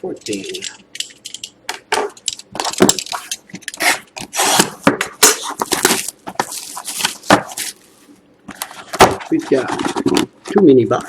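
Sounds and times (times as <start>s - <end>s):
cardboard scraping cardboard: 3.1s - 10.2s.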